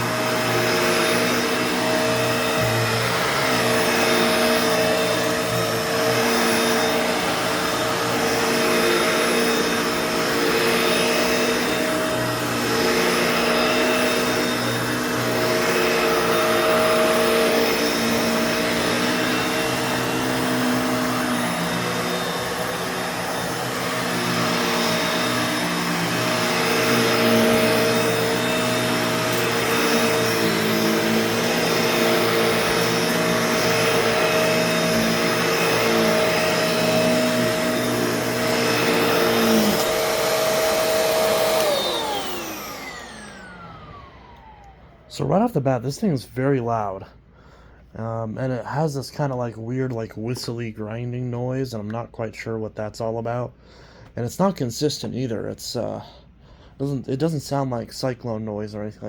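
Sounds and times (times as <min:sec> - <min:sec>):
vacuum cleaner running: 0:00.0 - 0:47.2, 0:53.4 - 0:57.9.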